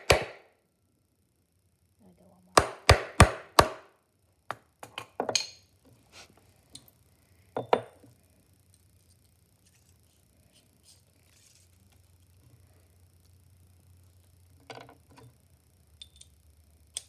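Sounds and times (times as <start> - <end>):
hammer striking cork gasket: 0.0 - 0.4, 2.6 - 3.8.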